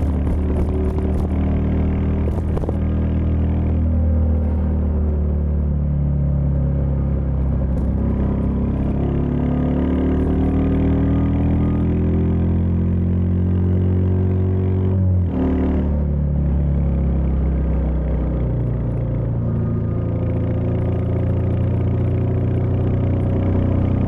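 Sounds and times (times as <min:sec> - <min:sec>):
motorcycle engine running: 0:00.0 - 0:04.0, 0:07.0 - 0:12.2.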